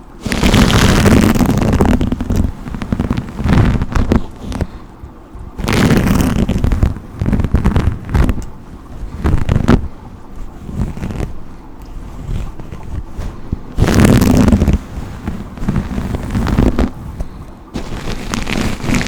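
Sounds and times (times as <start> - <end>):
brush strokes swishing: 5.6 - 19.0.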